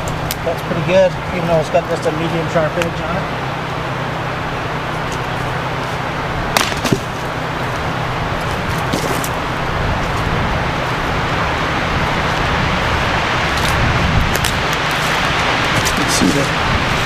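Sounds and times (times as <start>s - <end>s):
steady background rumble: 0.0s - 17.0s
axe chopping dead wood: 6.5s - 7.2s.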